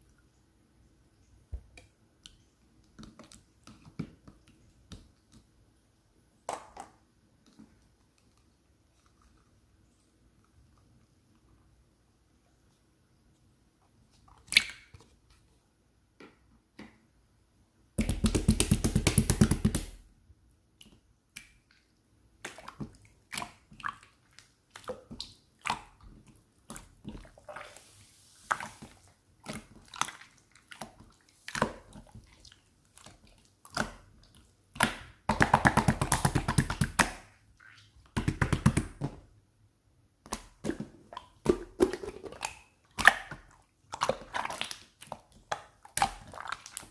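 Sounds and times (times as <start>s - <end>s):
clicks and taps: 18.0s - 20.0s.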